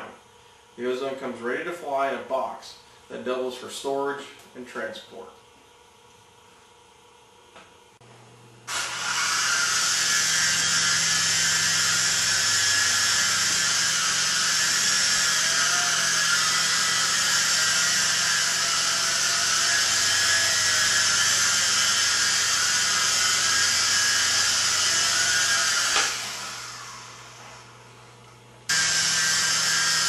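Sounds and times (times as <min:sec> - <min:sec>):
toy helicopter rotors whining: 0:08.7 - 0:27.4.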